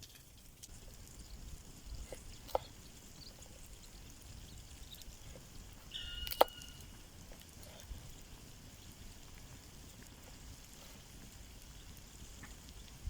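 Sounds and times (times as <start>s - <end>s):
campfire crackling: 0.0s - 13.0s
fire popping: 0.0s - 13.0s
whistle-like tone: 5.9s - 7.0s.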